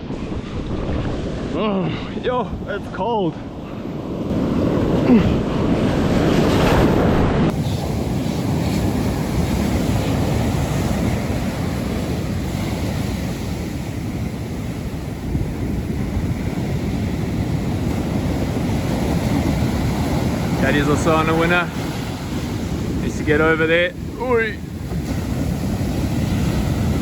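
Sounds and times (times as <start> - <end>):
ocean surf breaking: 0.0 - 27.0
wind buffeting microphone: 0.0 - 27.0.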